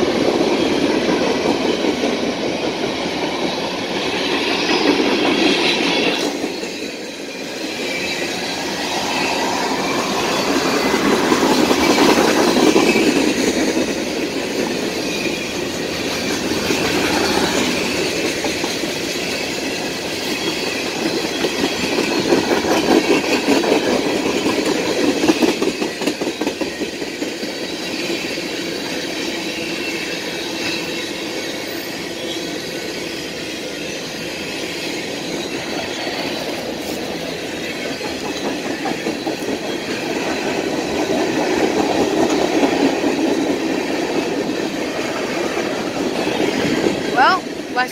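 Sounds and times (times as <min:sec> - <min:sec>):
train wheels clattering over rails: 0:00.0 - 0:47.8.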